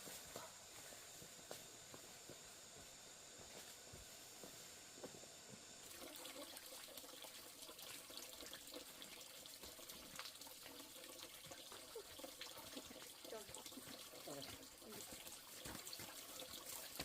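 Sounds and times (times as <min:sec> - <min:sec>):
running water with splashes: 0:05.8 - 0:17.0.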